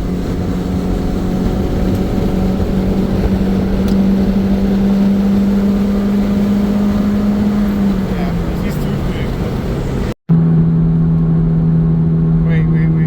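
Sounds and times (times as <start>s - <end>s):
tyre and wind noise: 0.0s - 10.1s
car engine droning: 0.0s - 13.0s.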